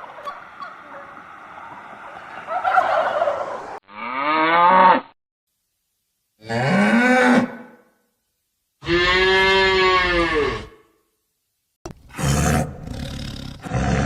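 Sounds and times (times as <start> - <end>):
cows mooing: 0.0 - 4.6.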